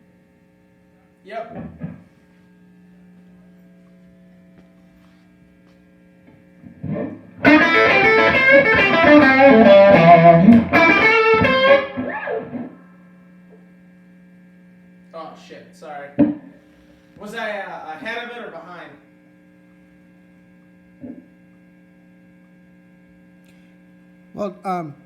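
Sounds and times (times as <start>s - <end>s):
mains hum: 0.0s - 25.0s
distorted electric guitar lick: 6.8s - 12.9s.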